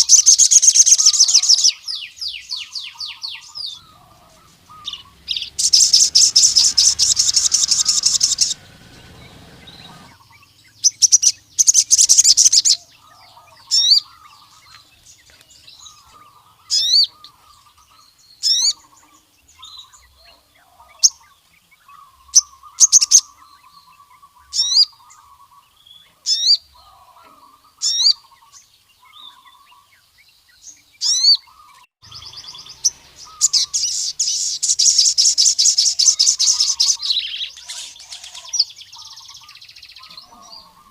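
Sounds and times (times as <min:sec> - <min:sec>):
bird singing high trill: 0:00.0 - 0:14.8, 0:30.8 - 0:40.9
faint lower bird twittering: 0:00.0 - 0:40.9.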